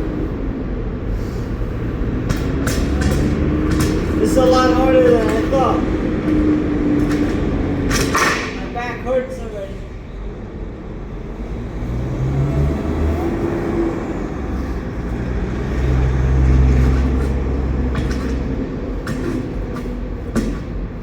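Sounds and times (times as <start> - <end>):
heavy truck engine rumble: 0.0 - 8.8, 9.9 - 21.0
short knocks: 2.2 - 8.6.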